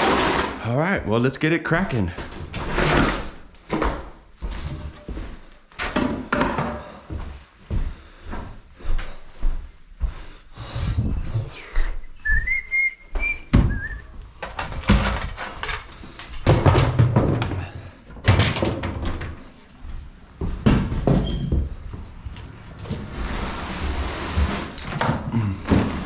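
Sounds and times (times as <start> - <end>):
person whistling: 11.9 - 14.1
debris thumping and clattering: 14.4 - 19.4.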